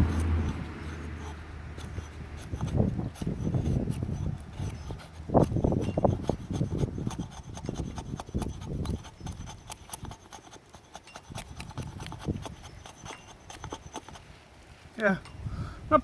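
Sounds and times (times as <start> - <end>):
hatchet scraping wood: 0.0 - 14.3.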